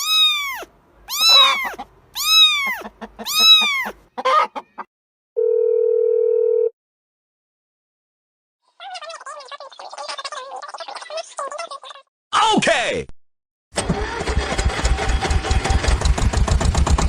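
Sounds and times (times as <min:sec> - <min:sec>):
animal calls rising and falling: 0:00.0 - 0:04.9.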